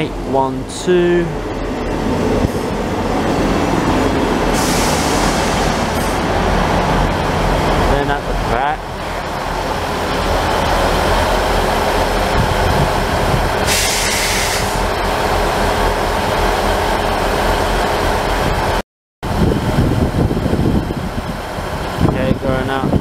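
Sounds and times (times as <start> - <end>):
train diesel engines running: 0.0 - 23.0
brief hiss: 13.7 - 14.8.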